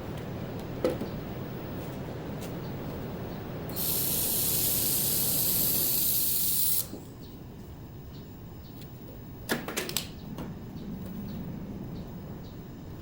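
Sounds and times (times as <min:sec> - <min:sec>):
high-pitched hiss: 0:03.7 - 0:07.0.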